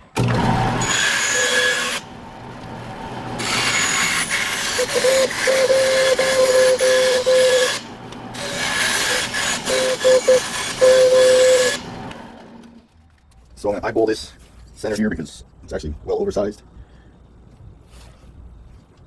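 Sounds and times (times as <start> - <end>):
saw cutting wood: 0.0 - 12.7
saw blade whine: 0.0 - 12.8.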